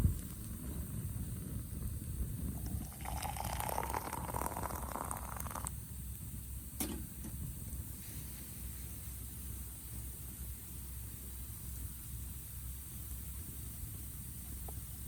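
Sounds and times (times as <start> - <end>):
liquid pouring into container: 2.5 - 5.7.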